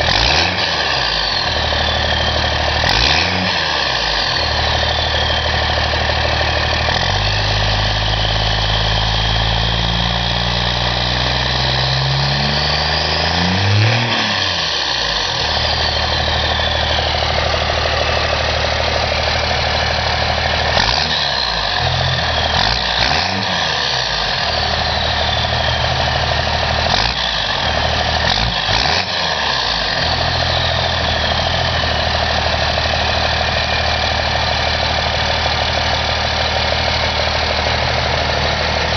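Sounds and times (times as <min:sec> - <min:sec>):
diesel engine revving: 0:00.0 - 0:38.9
turbo whistle: 0:21.0 - 0:26.3.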